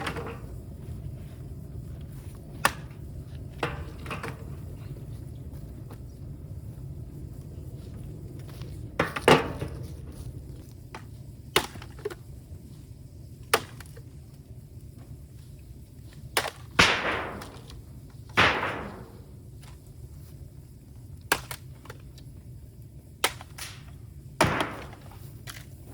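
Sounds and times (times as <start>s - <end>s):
bamboo cracking and popping: 10.6s - 12.2s, 13.4s - 14.1s, 16.1s - 18.7s, 21.2s - 22.3s, 23.2s - 25.9s.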